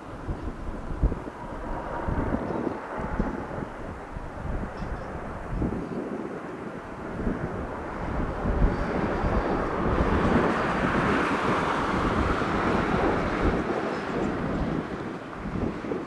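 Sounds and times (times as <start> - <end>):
wind buffeting microphone: 0.0 - 16.0
jet roar passing: 6.5 - 16.0.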